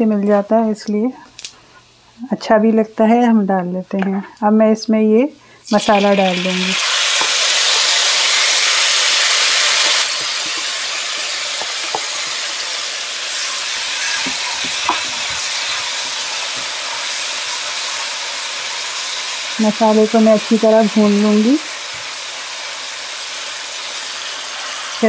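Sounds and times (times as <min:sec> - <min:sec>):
paste sizzling in hot oil: 0:05.7 - 0:25.0.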